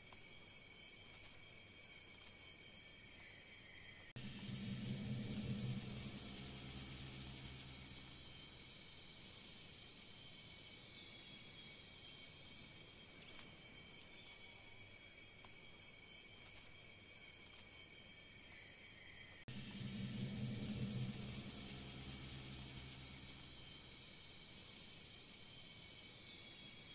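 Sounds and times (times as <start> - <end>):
high-pitched insect chorus: 0.0 - 26.9
background music: 4.2 - 8.5, 19.5 - 23.9.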